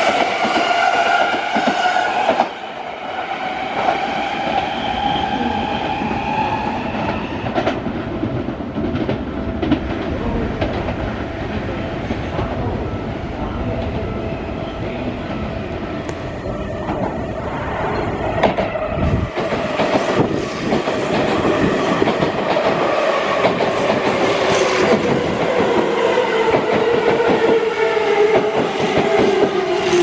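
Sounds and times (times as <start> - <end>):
wheels rumbling on rail: 3.8 - 27.6.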